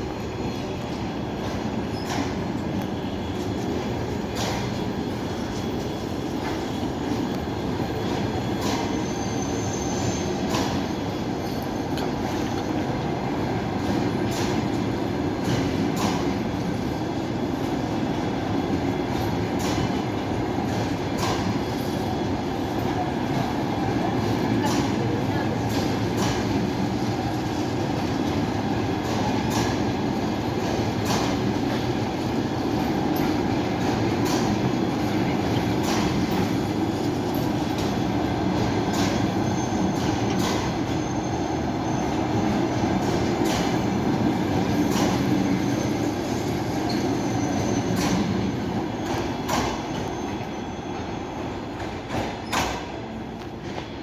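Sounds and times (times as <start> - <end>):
train wheels clicking over rail joints: 0.0 - 13.1, 13.7 - 23.7, 24.3 - 41.2, 42.0 - 54.0
train rolling rumble: 0.0 - 54.0
high wheel squeal: 8.8 - 11.9, 39.1 - 42.8, 43.9 - 51.8.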